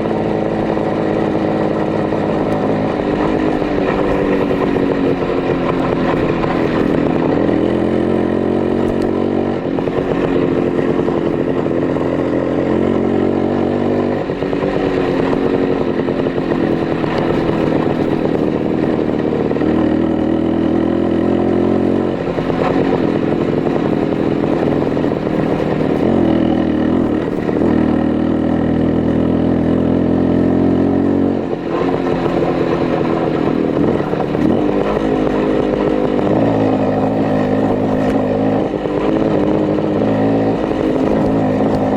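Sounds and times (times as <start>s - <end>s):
two-stroke motorcycle engine revving: 0.0s - 41.9s.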